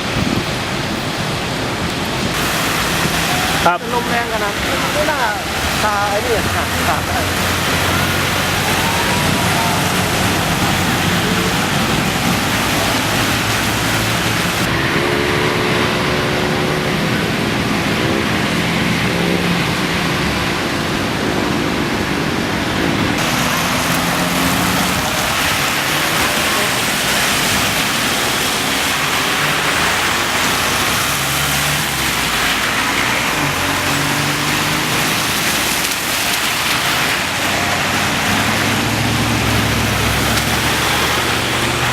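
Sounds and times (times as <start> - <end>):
heavy rain: 0.0 - 41.9
vehicle noise: 0.0 - 41.9
wind: 0.0 - 41.9
faint voices: 3.1 - 14.5.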